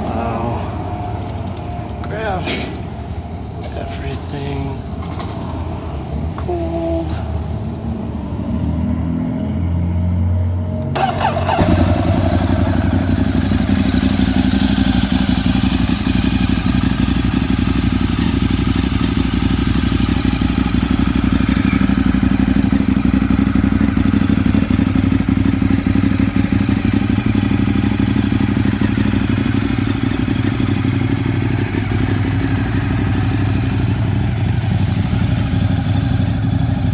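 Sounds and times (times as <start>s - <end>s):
motorcycle engine starting and idling: 0.0s - 36.9s.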